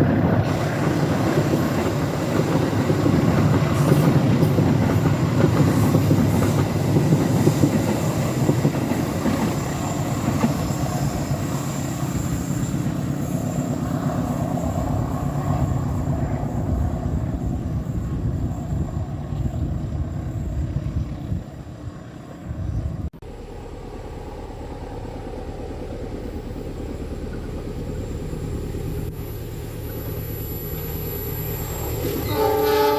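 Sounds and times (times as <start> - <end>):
train wheels clattering over rails: 0.0 - 15.8.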